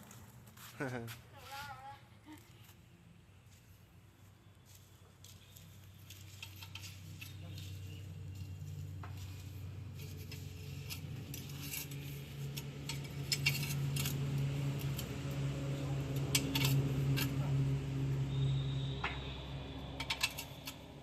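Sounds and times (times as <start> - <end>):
metal tools clinking on metal: 6.1 - 8.6, 10.0 - 15.1, 16.1 - 17.4, 20.0 - 21.0
low machine hum: 7.3 - 21.0.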